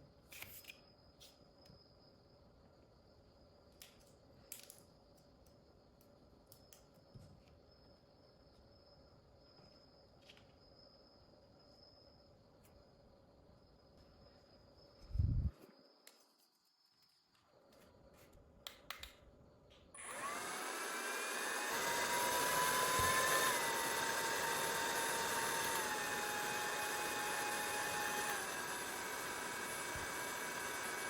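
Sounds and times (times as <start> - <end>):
fan whirring with motor whine: 20.0 - 31.0.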